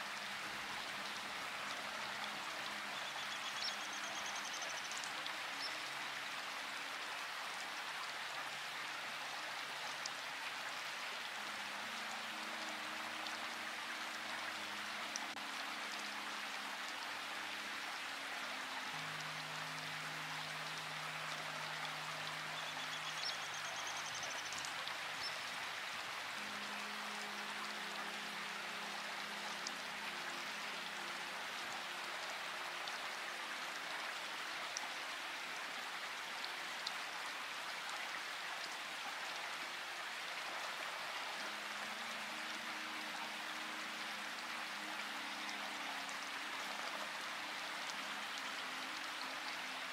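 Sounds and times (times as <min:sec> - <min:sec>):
rain falling: 0:00.0 - 0:49.9
soft low music notes: 0:00.0 - 0:49.9.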